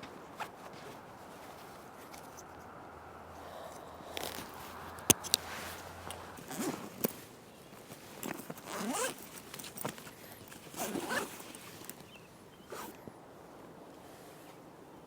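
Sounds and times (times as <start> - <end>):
zipper being pulled: 4.0 - 7.2, 8.2 - 9.9, 10.7 - 11.6, 12.7 - 13.0.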